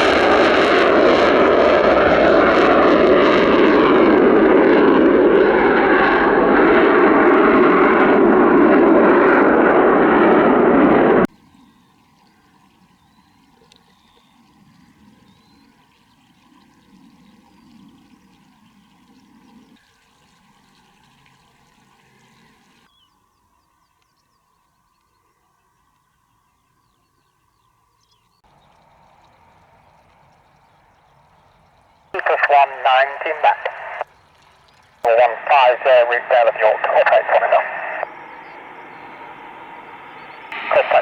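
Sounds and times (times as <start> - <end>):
jet engines roaring: 0.0 - 11.3, 32.2 - 34.1, 35.0 - 41.0
faint outdoor background: 11.2 - 41.0.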